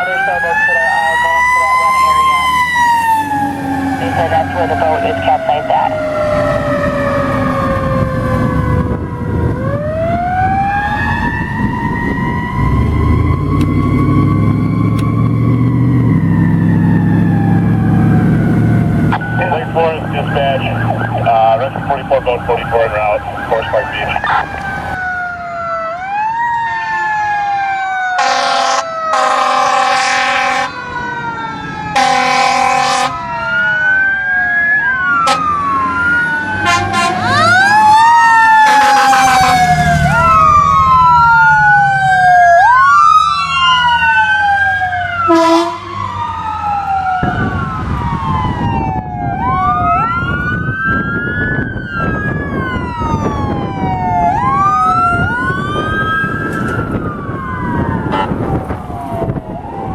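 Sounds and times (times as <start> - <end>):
heavy truck engine rumbling: 0.0 - 26.0, 31.2 - 59.9
fire sirens wailing: 0.0 - 59.9
air horn blasts: 28.2 - 30.7, 32.0 - 33.2, 35.2 - 35.5, 36.6 - 37.3, 38.6 - 39.6, 45.3 - 46.0, 58.1 - 58.4.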